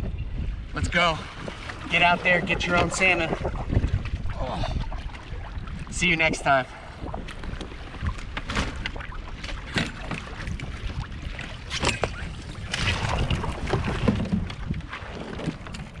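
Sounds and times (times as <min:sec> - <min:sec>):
water lapping against kayak hull: 0:00.0 - 0:16.0
wind rumbling on microphone: 0:00.0 - 0:16.0
small knocks and splashes: 0:07.2 - 0:16.0.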